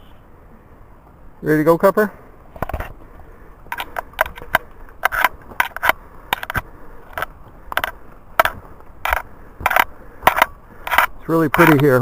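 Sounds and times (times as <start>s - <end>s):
footsteps crunching on trail: 2.6s - 11.8s.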